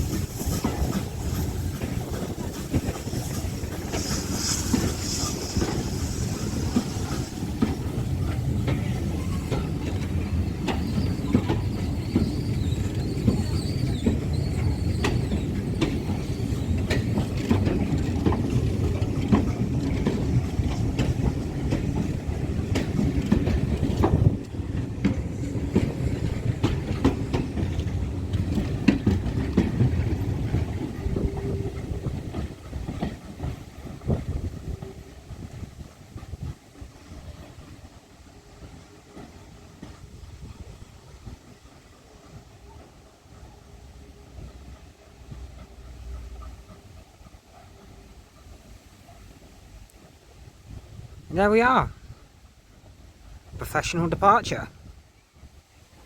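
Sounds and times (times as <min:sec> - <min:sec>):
train wheels clicking over joints: 0:00.0 - 0:54.7
train low rumble: 0:00.0 - 0:56.0
high squeal: 0:03.9 - 0:07.5.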